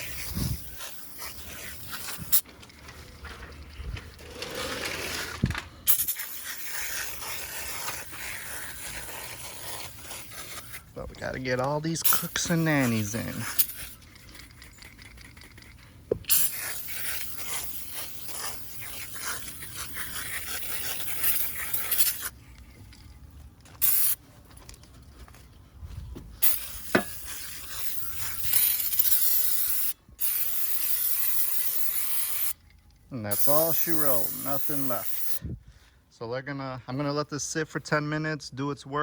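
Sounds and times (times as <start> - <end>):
aerosol can spraying: 0.0 - 2.4, 5.9 - 10.8, 11.5 - 22.3, 23.8 - 24.2, 26.4 - 32.6, 33.3 - 35.4.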